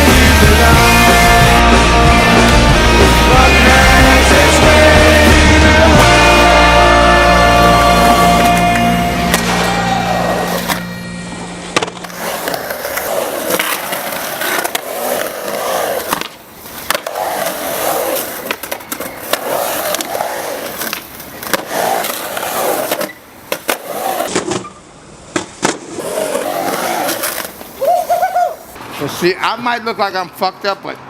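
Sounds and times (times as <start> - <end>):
skateboard wheels rolling: 0.0 - 11.0, 11.6 - 28.9
skateboard clacks: 11.8 - 24.7.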